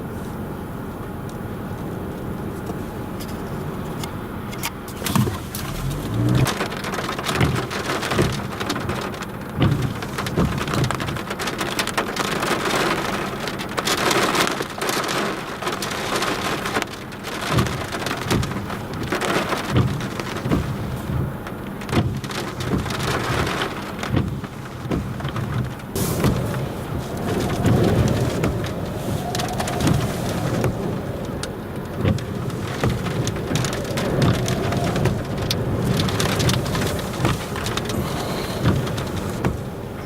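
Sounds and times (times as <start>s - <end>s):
heavy rain: 5.1s - 40.0s
wind buffeting microphone: 22.2s - 40.0s.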